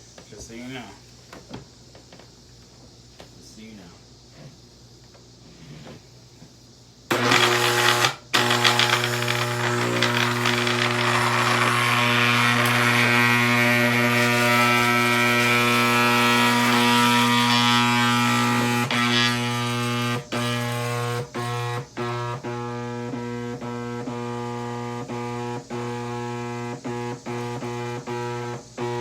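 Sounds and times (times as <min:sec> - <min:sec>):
vacuum cleaner running: 0:07.1 - 0:29.0.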